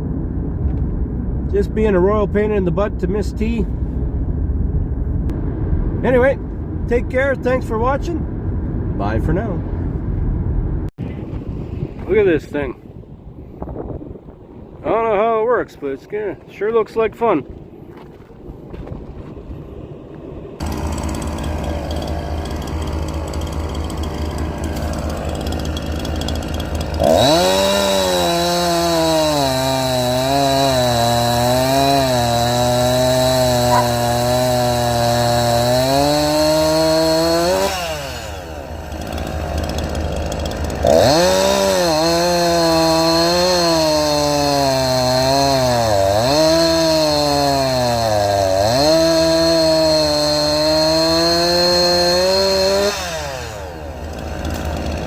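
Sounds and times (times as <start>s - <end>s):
small engine revving: 20.6s - 55.0s.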